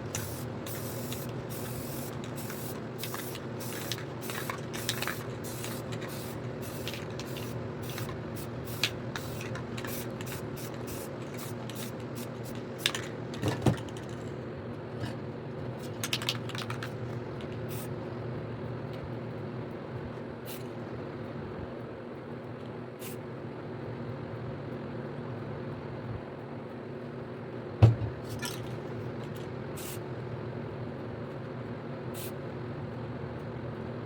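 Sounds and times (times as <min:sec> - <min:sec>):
spray paint cans hissing: 0:00.0 - 0:14.3, 0:15.8 - 0:17.9, 0:29.3 - 0:30.0
steady low hum: 0:00.0 - 0:22.6.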